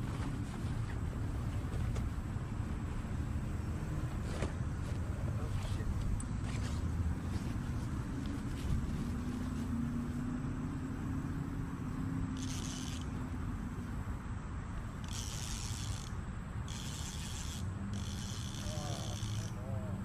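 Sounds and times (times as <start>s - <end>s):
steady motor hum: 0.0s - 20.0s
short high buzzing bursts: 12.4s - 13.2s, 14.9s - 19.6s.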